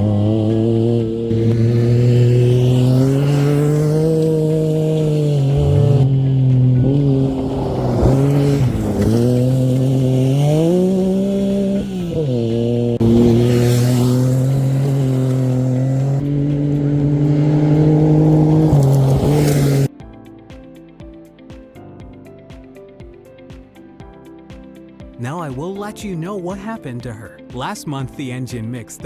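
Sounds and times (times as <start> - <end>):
engine revving under load: 0.0 - 19.9.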